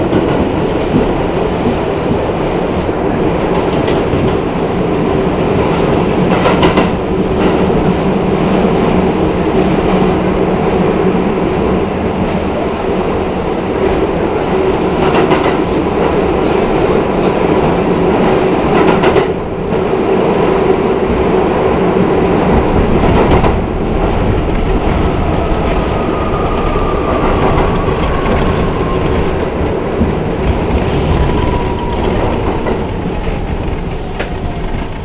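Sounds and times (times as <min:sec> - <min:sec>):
train wheels rumbling on rails: 0:00.0 - 0:35.0
wheels clacking on rails: 0:00.0 - 0:35.0
train whine falling in pitch: 0:19.6 - 0:35.0.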